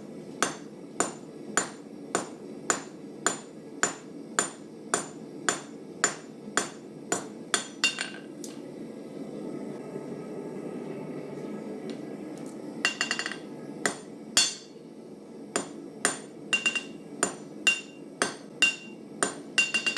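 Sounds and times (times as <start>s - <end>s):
hammer striking steel on anvil: 0.4s - 8.3s, 12.9s - 14.8s, 15.6s - 19.9s.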